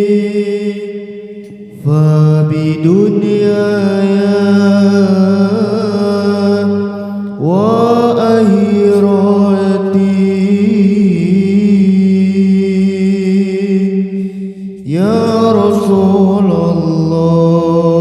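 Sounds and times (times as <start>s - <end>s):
person singing devotional song: 0.0s - 18.0s.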